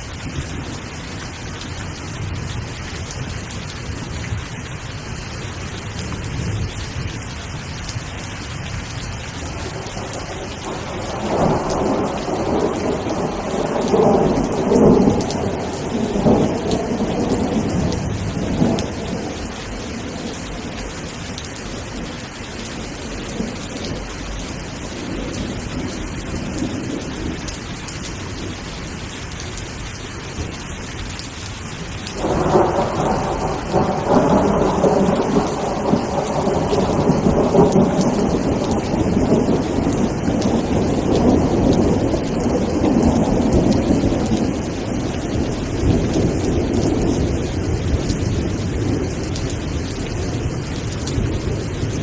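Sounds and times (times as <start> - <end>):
rain falling: 0.0 - 52.0
thunder rumbling: 9.0 - 28.6, 32.1 - 52.0.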